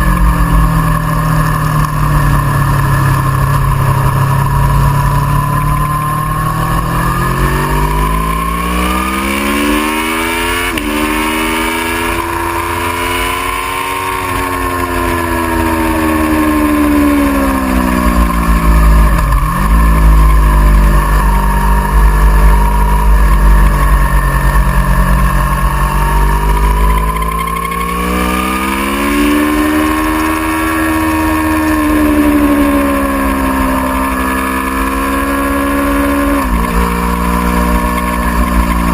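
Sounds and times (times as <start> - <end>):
low rumble: 0.0 - 9.5, 14.2 - 29.6
motorcycle engine revving: 0.0 - 38.9.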